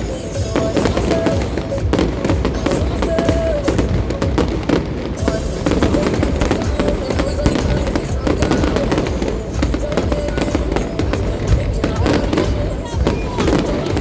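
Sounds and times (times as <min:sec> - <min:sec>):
fireworks bangs and crackles: 0:00.0 - 0:14.0
music playing: 0:00.0 - 0:14.0.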